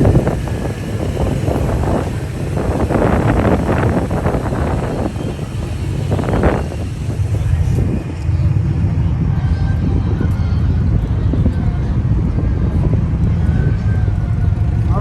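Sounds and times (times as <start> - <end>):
car engine idling: 0.0 - 9.1
voices: 0.0 - 10.8.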